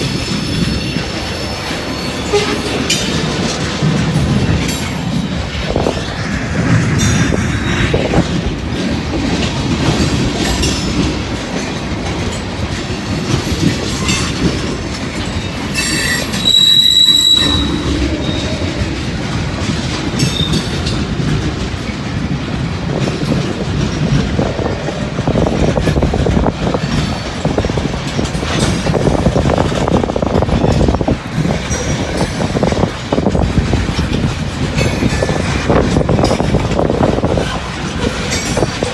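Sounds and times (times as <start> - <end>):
freight train rumbling: 0.0 - 38.9
wheels clattering over rail joints: 0.0 - 38.9
high-pitched wheel squeal: 15.8 - 18.6.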